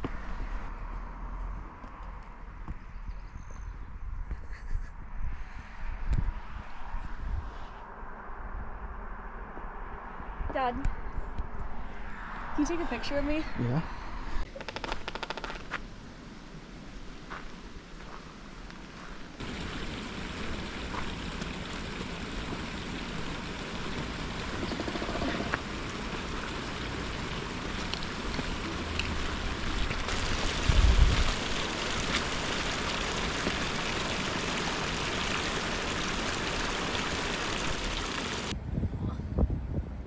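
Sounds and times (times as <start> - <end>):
flowing water rushing: 19.4 - 38.5.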